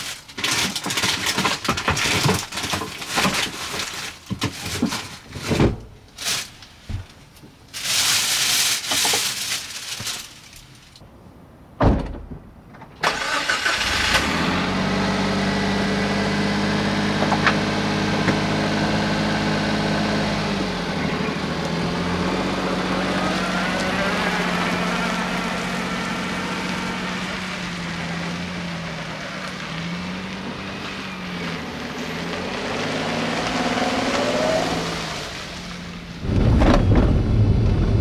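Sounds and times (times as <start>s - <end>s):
knocks and rustling: 0.0s - 11.0s, 11.8s - 13.0s, 17.1s - 18.7s
car engine idling: 13.1s - 36.2s.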